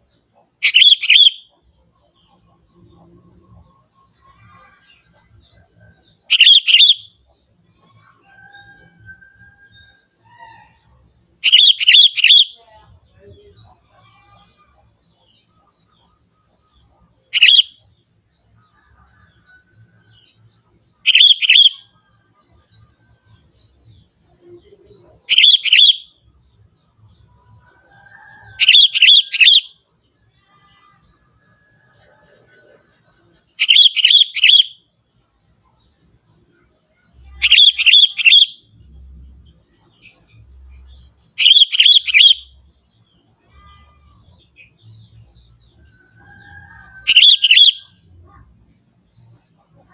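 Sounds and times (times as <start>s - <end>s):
faint bird chirps: 0.0s - 49.9s
bulbul calling in bursts: 0.6s - 1.5s, 6.3s - 7.2s, 11.4s - 12.6s, 17.3s - 17.8s, 21.0s - 21.9s, 25.2s - 26.2s, 28.6s - 29.8s, 33.5s - 34.9s, 37.4s - 38.8s, 41.2s - 42.6s, 47.0s - 48.0s.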